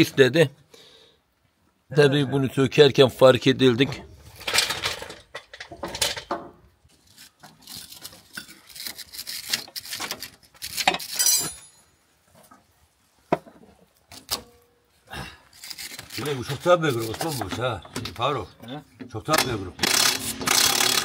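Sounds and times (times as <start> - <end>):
metal parts clattering: 4.2 - 6.4, 7.1 - 11.8, 15.5 - 18.1
metal tools clinking: 4.3 - 6.3, 7.6 - 12.0.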